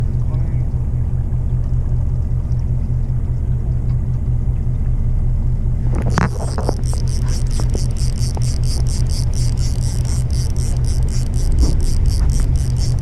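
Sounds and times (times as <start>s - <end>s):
boat engine rumbling: 0.0s - 13.0s
fast even ticking: 6.4s - 13.0s.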